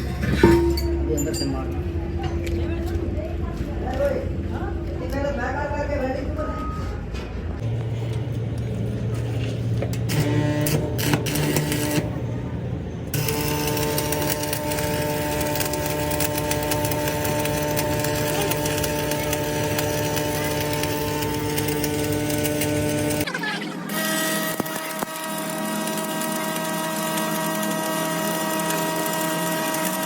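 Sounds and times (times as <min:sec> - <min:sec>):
workshop machine whining: 0:07.2 - 0:30.0.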